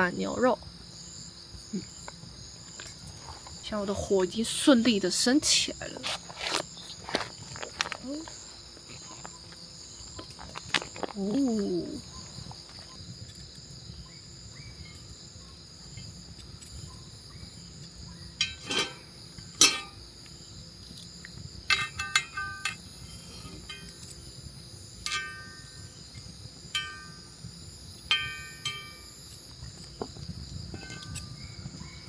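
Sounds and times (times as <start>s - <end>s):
crickets chirring: 0.0s - 32.0s
sharp metallic clinks: 17.8s - 20.0s, 21.7s - 24.2s, 24.9s - 29.9s, 30.7s - 32.0s.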